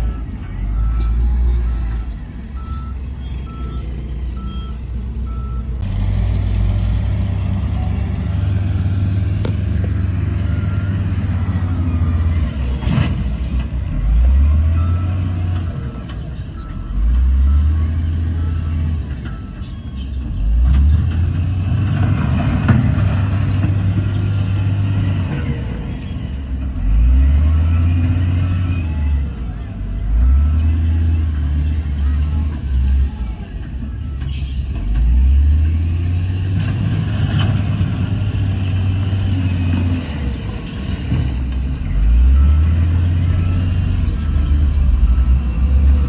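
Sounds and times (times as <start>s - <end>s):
reversing alarm beeping: 0.0s - 5.8s, 7.6s - 20.5s, 37.7s - 46.0s
diesel machinery engines revving: 0.0s - 46.0s.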